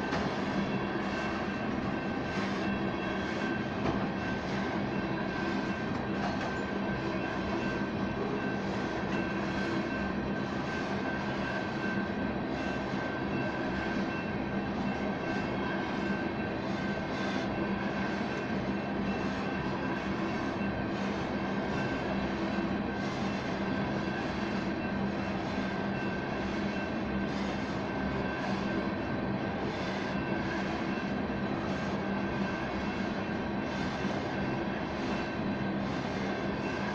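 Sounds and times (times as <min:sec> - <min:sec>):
train wheels rumbling on rail: 0:00.0 - 0:10.0, 0:10.6 - 0:24.6.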